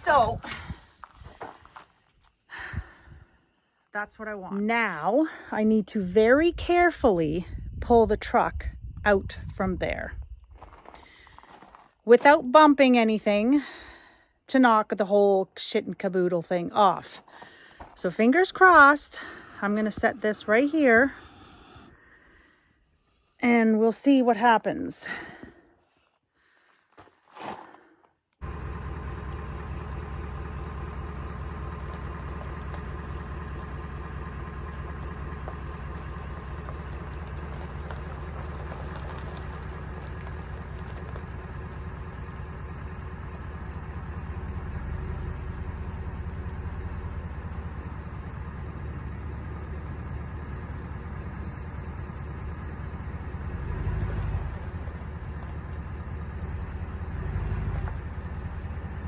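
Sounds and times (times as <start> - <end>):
pickup truck engine idling: 28.4 - 59.0.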